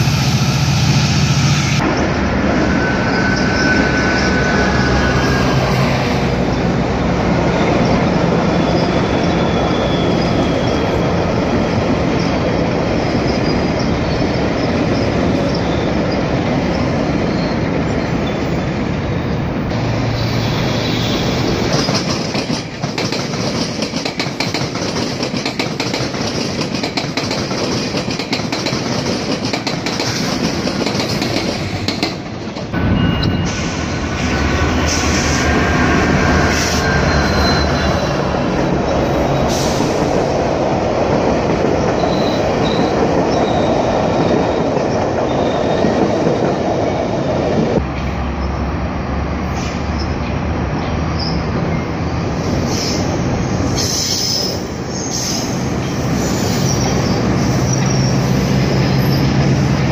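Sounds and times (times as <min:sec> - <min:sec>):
train wheel and rail noise: 0:00.0 - 0:59.9
high wheel squeals: 0:01.7 - 0:06.7, 0:07.6 - 0:11.5, 0:12.2 - 0:18.6, 0:20.1 - 0:22.1, 0:32.8 - 0:40.1, 0:41.9 - 0:46.0, 0:51.2 - 0:59.5.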